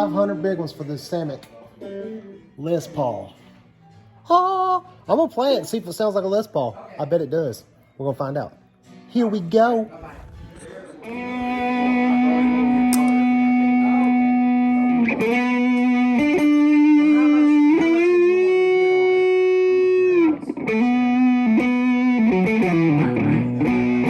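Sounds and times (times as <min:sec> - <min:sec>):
electric guitar sustained notes: 0:11.0 - 0:24.0.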